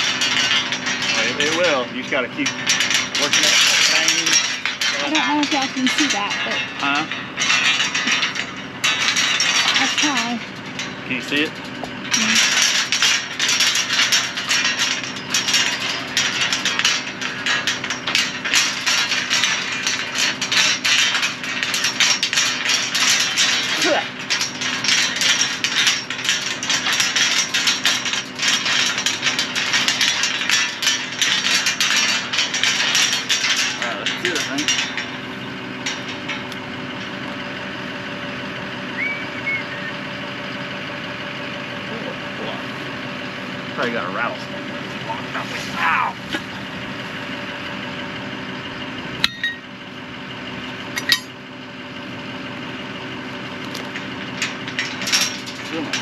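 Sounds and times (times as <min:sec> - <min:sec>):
metallic clicking and rattling of tools: 0:00.0 - 0:39.9, 0:50.8 - 0:51.4, 0:53.6 - 0:56.0
engine idling: 0:00.0 - 0:56.0
sharp metallic clink: 0:49.2 - 0:49.7.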